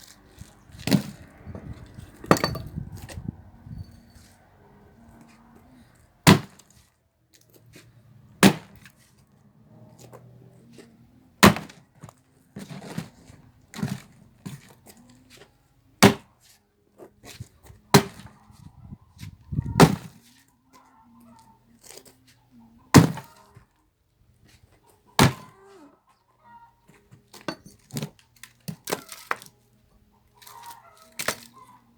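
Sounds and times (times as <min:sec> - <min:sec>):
axe splitting logs: 0:00.7 - 0:03.2, 0:06.2 - 0:06.8, 0:08.4 - 0:08.9, 0:11.4 - 0:11.8, 0:16.0 - 0:16.3, 0:17.2 - 0:18.3, 0:19.6 - 0:20.2, 0:22.9 - 0:23.3, 0:25.2 - 0:25.5, 0:31.1 - 0:31.5.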